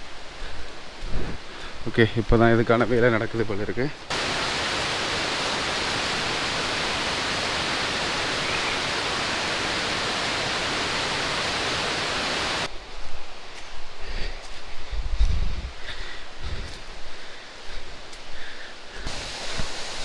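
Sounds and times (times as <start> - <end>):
water rushing: 4.1 - 12.7, 19.1 - 20.0.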